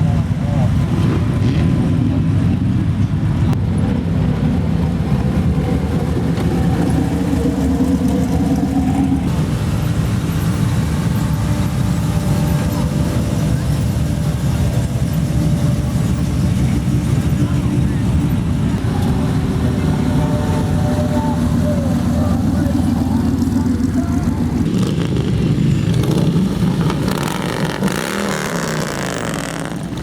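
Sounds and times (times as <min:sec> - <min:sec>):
cars driving slowly past: 0:00.0 - 0:30.0.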